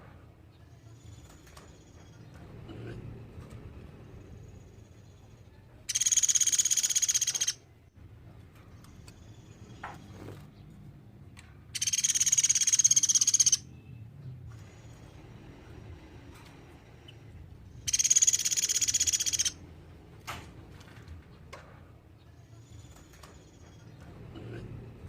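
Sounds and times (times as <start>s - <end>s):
woodpecker rattling trills: 5.9s - 7.6s, 11.8s - 13.6s, 17.8s - 19.6s.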